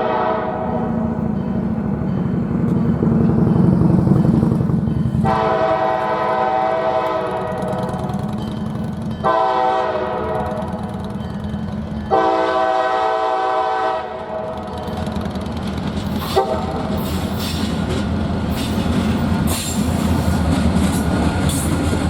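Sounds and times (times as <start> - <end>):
locomotive air horn blasts: 0.0 - 0.8, 5.2 - 7.8, 9.2 - 10.6, 12.1 - 14.6, 16.3 - 17.0
locomotive engine and rail rumble: 0.0 - 22.0.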